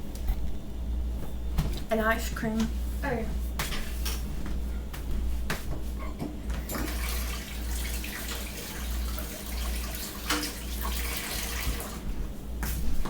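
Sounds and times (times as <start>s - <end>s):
tap water running: 6.6s - 12.2s.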